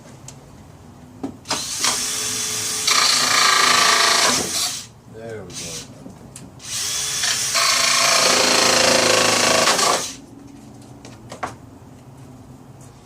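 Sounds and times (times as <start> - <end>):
power tool cutting: 1.5 - 4.9, 6.6 - 10.2.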